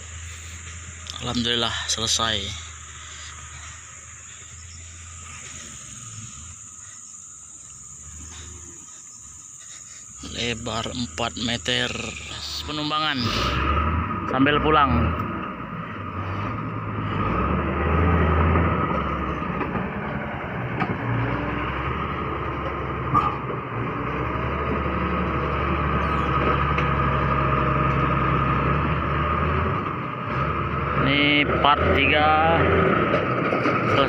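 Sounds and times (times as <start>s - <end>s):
bulldozer diesel engine drone: 0.0s - 34.0s
high whine: 24.8s - 29.0s.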